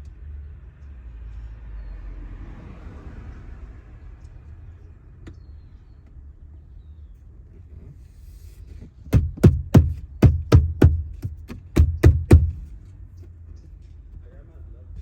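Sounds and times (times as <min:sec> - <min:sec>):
hard knocks: 0:09.1 - 0:12.8.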